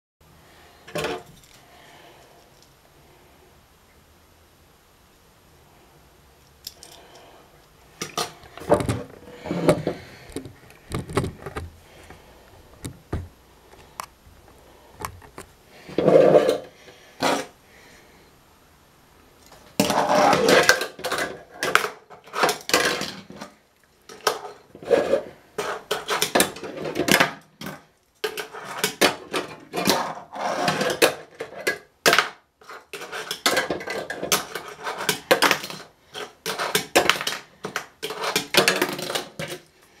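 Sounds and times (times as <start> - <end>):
small plastic wheels rolling: 13.8 - 17.6, 19.5 - 39.7.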